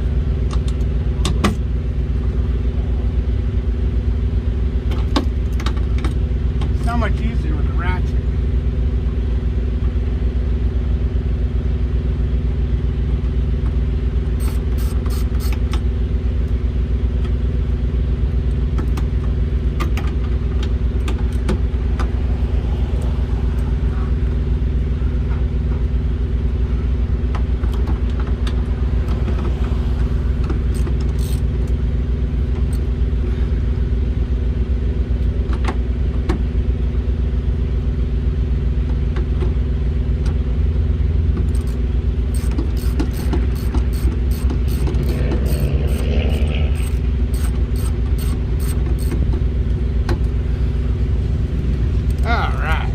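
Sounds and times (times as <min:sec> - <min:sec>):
diesel engine idling: 0:00.0 - 0:52.9
socket ratchet clicking: 0:14.4 - 0:15.7, 0:30.7 - 0:31.5, 0:41.5 - 0:49.3.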